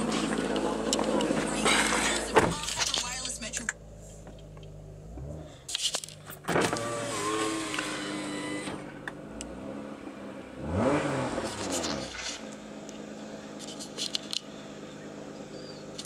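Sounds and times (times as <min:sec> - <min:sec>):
car engine revving: 0:00.0 - 0:02.8, 0:03.7 - 0:16.0.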